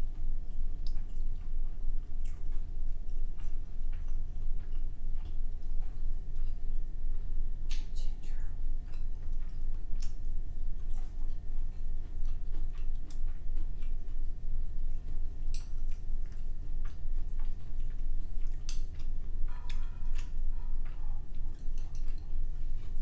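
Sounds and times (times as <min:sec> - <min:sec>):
person chewing food: 0:00.0 - 0:23.0
wet mouth clicks: 0:07.7 - 0:08.1.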